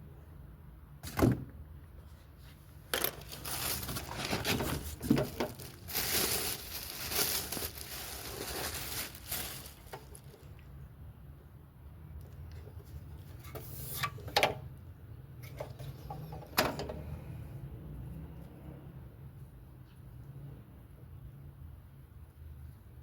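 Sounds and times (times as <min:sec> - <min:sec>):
packaging rustling and crinkling: 0:02.9 - 0:10.6.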